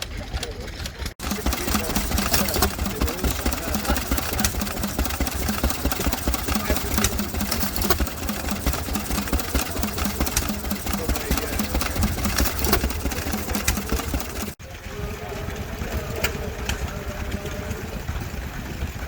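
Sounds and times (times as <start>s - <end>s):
stationary engine running: 0.0s - 19.0s
sharp clicks: 1.2s - 14.6s.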